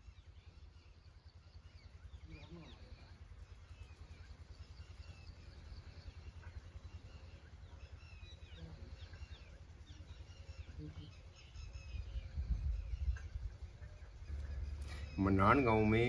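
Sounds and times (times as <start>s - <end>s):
faint low rumble: 0.0s - 16.0s
small birds chirping: 0.0s - 16.0s.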